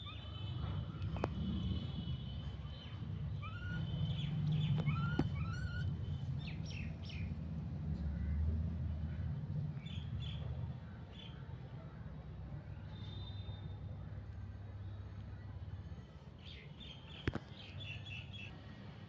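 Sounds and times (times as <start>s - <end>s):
small birds chirping: 2.7s - 8.4s.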